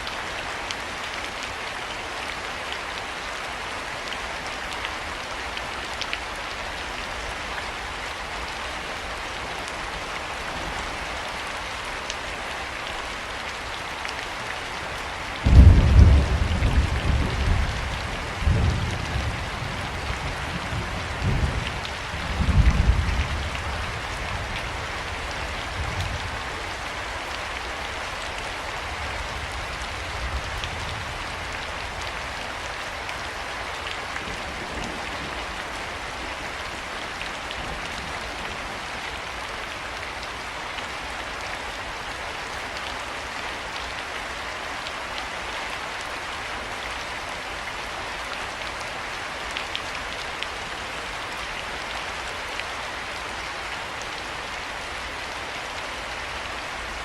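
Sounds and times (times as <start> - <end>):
heavy rain pattering: 0.0 - 57.0
low thunder rumbles: 15.4 - 26.5.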